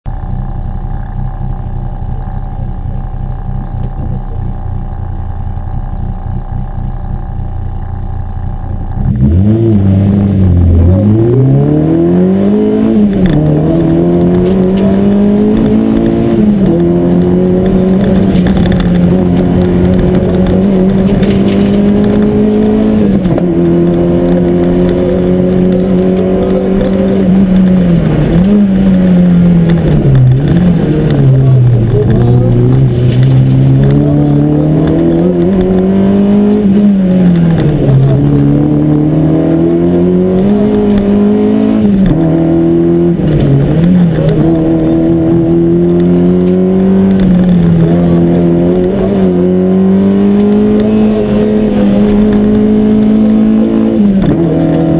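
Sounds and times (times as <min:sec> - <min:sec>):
car engine revving through gears: 0:07.1 - 0:54.9.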